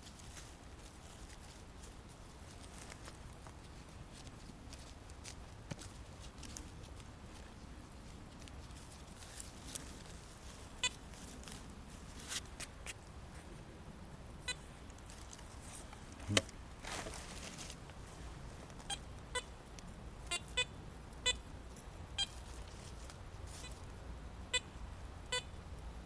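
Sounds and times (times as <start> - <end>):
metal detector beeping: 22.2 - 22.4.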